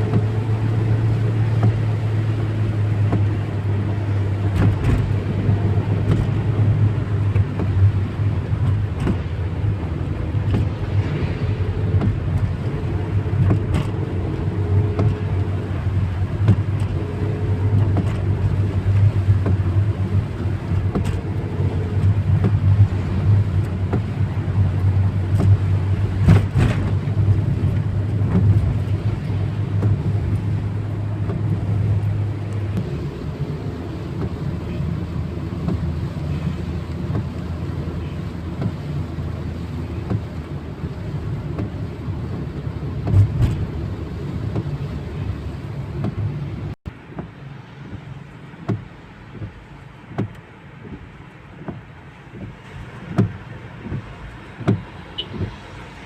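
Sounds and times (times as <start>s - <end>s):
car engine rumble: 0.0s - 56.0s
road noise: 0.0s - 56.0s.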